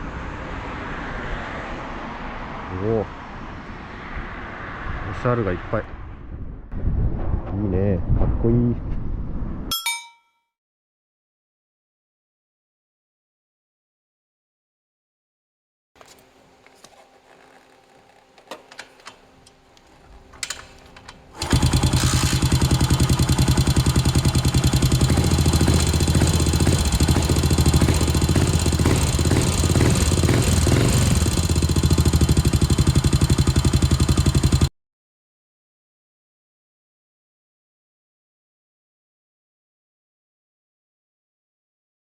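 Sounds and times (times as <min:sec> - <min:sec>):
motorcycle engine running: 0:21.4 - 0:34.7.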